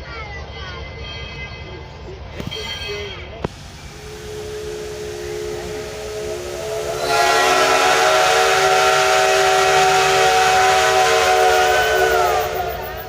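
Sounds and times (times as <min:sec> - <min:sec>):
steam hissing: 0:03.5 - 0:13.0
steam locomotive whistle: 0:03.8 - 0:13.0.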